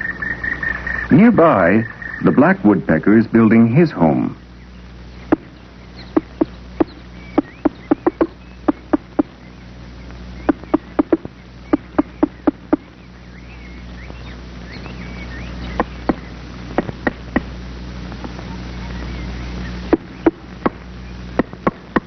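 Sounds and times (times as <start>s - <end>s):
low film hum: 0.0s - 22.0s
small birds chirping: 0.0s - 22.0s
woodpecker knocking on wood: 5.3s - 5.5s, 6.1s - 9.3s, 10.5s - 12.9s, 16.8s - 17.5s, 21.4s - 22.0s.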